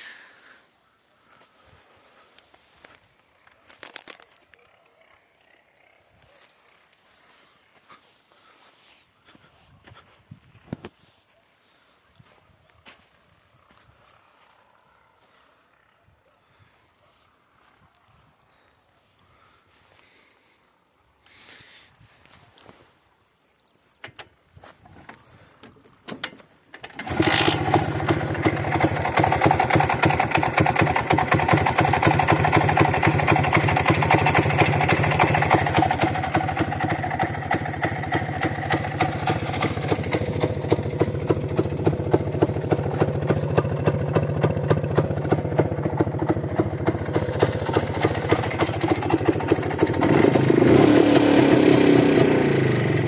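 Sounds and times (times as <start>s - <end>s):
starter clicks: 25.1s - 29.3s
two-stroke engine running: 26.8s - 53.0s.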